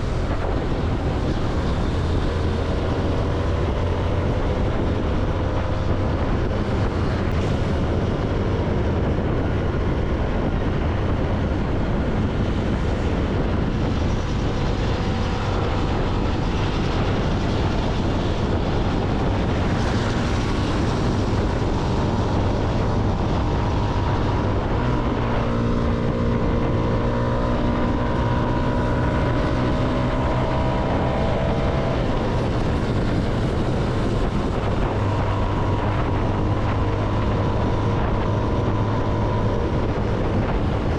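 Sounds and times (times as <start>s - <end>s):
motorcycle engine running: 0.0s - 40.9s
road noise: 0.0s - 40.9s
wind noise: 0.0s - 40.9s.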